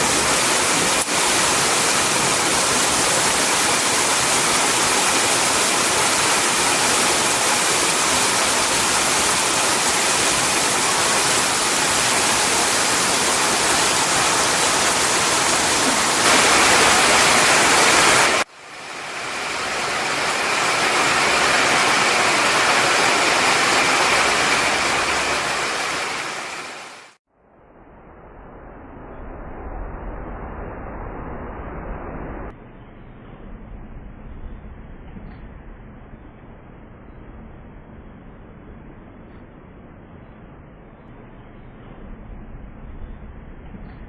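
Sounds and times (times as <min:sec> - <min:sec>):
heavy rain pouring: 0:00.0 - 0:27.2.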